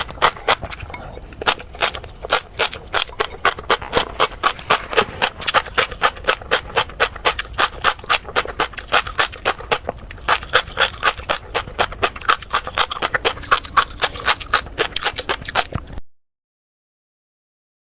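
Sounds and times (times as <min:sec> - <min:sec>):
chewing crunchy fish roe: 0:00.0 - 0:16.0.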